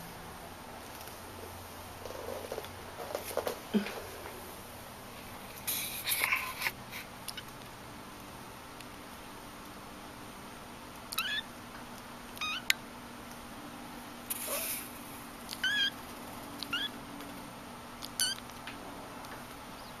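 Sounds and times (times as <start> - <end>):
kitten mewing: 11.1 - 11.5, 12.4 - 12.7, 14.3 - 14.9, 15.5 - 16.0, 16.6 - 17.0.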